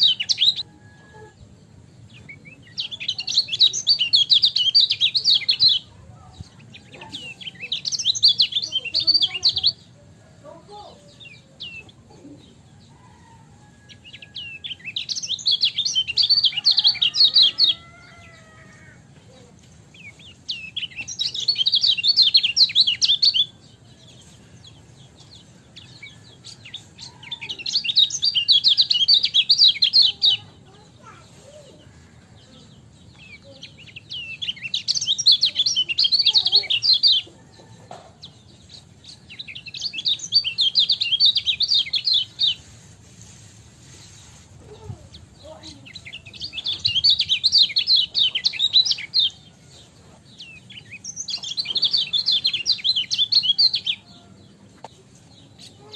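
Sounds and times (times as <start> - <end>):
bird twittering chatter: 2.1 - 9.9, 33.1 - 37.4, 38.2 - 49.4, 50.4 - 54.1.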